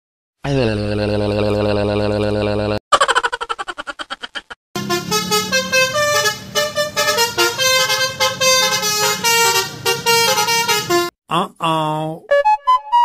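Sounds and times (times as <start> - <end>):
musical horn playing melody: 4.8 - 11.1.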